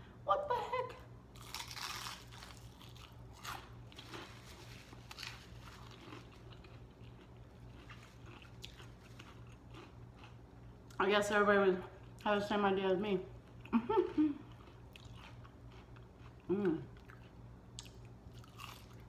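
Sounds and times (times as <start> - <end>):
crunchy bite into onion ring: 1.4 - 10.5, 14.6 - 19.0
crunchy chewing: 1.4 - 11.0, 14.4 - 19.0.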